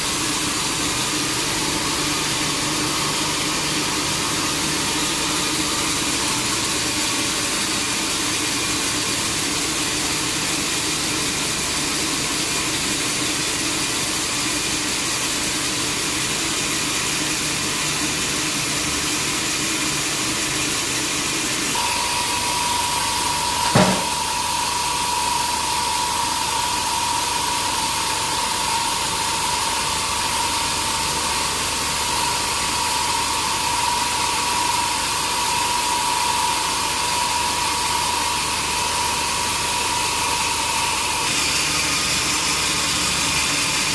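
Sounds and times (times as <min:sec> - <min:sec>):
sawmill saw running: 0:00.0 - 0:43.9
high whine: 0:21.8 - 0:30.4
sharp knock: 0:23.6 - 0:24.2.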